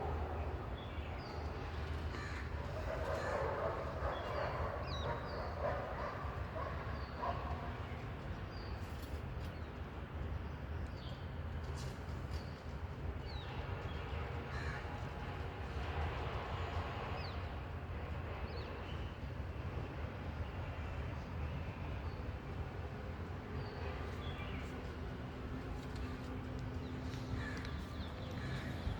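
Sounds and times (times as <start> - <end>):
birds chirping: 23.7 - 28.9
steady low rumble: 24.0 - 28.9.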